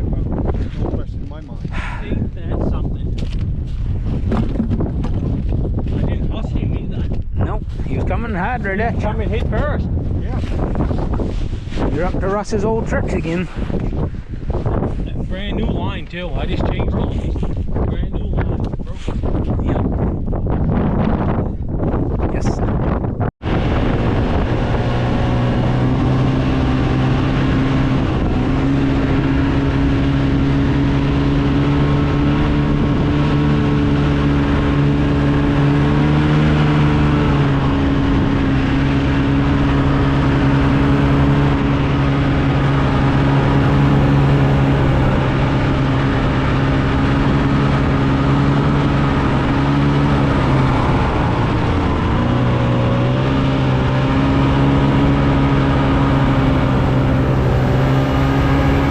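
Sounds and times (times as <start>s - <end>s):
vehicle engine running: 23.4s - 58.9s.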